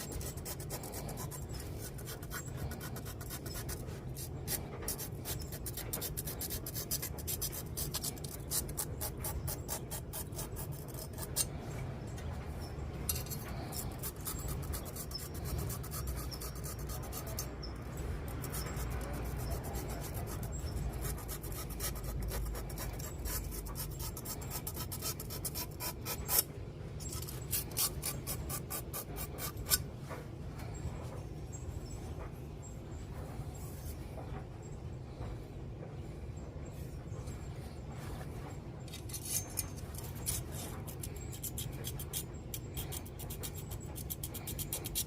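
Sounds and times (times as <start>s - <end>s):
sharpening stone scraping blade: 0.0s - 11.6s, 13.1s - 29.8s, 38.9s - 45.0s.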